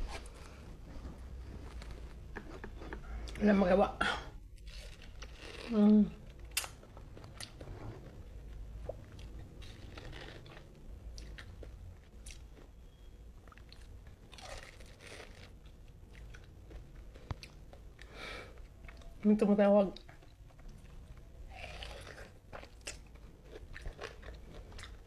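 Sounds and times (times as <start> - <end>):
person chewing fruit: 4.4 - 19.2, 20.0 - 25.0.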